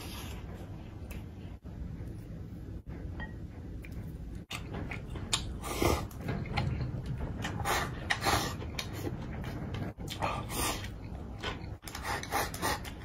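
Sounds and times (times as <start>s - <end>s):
man chewing food: 3.7s - 13.0s.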